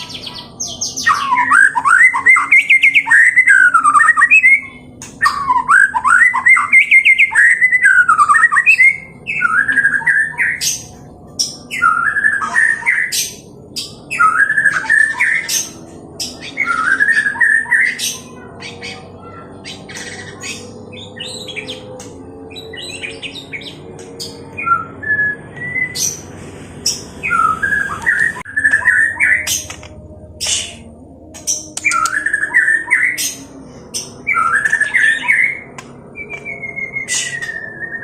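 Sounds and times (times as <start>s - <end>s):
bird singing whistled notes: 0.0s - 18.2s, 22.5s - 26.3s, 26.9s - 29.8s, 30.4s - 38.0s
bird harsh clicks: 31.4s - 32.2s.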